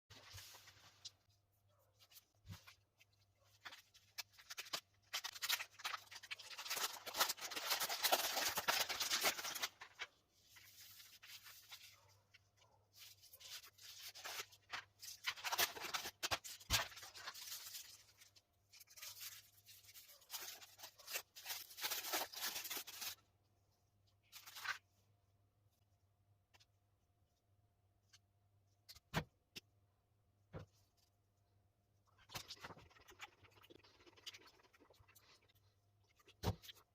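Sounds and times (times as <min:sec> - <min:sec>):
wrapper crinkling and tearing: 0:03.6 - 0:11.9, 0:13.4 - 0:23.2.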